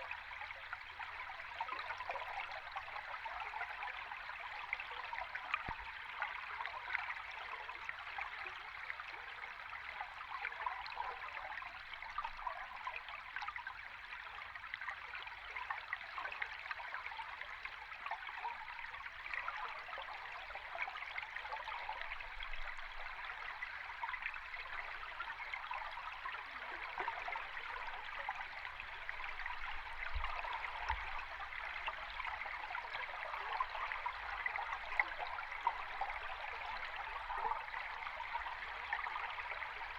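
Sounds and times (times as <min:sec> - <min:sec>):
water flowing underwater: 0:20.1 - 0:39.9.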